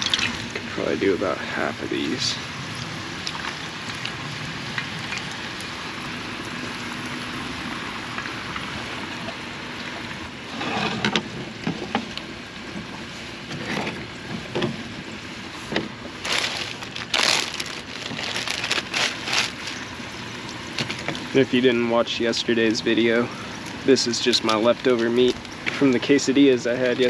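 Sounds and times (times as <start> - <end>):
hot oil sizzling: 0.0 - 0.8.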